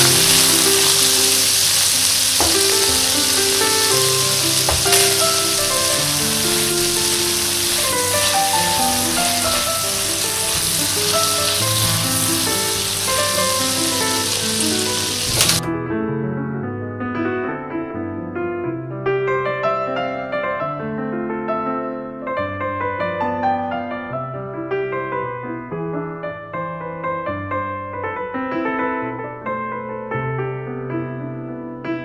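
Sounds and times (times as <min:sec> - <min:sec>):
food sizzling in a pan: 0:00.0 - 0:15.7
background music: 0:00.0 - 0:16.1.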